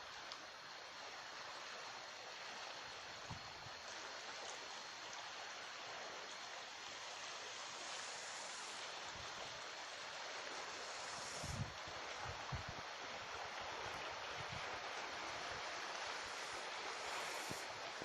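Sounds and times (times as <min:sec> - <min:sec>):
sea surf rushing: 0:07.5 - 0:18.0.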